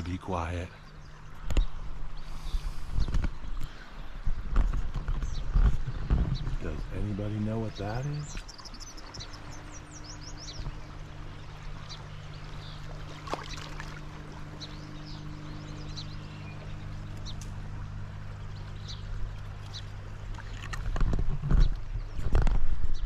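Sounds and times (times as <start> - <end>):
water flowing: 0.0 - 22.9
steady low hum: 0.0 - 23.0
bird chirps: 7.6 - 13.9, 14.5 - 17.5.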